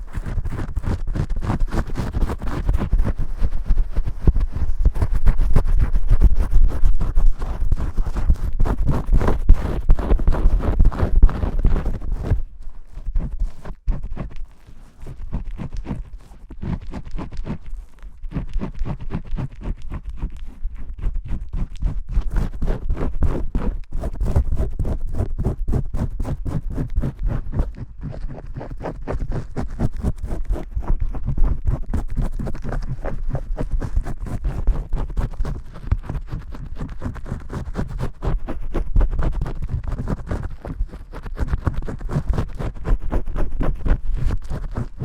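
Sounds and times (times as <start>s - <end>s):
fingers scrubbing lathered hair: 0.2s - 23.3s.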